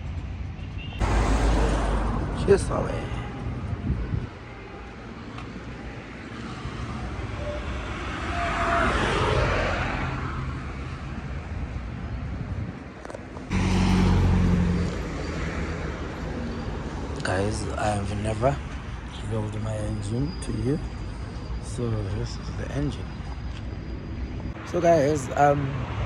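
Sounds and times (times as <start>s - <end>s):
vehicle passing: 1.0s - 4.6s, 6.4s - 11.3s, 13.5s - 18.2s.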